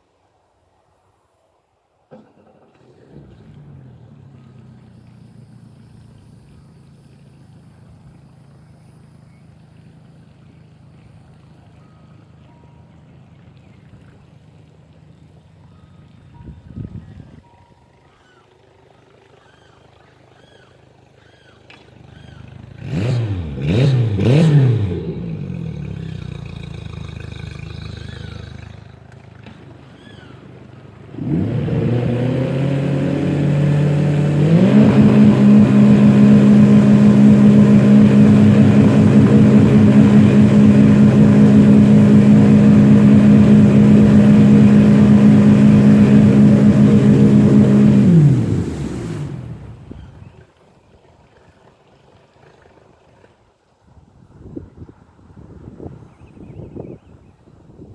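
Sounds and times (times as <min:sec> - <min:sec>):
engine blips: 0:02.1 - 0:50.4
car engine revving high: 0:22.2 - 0:28.8, 0:31.1 - 0:50.1.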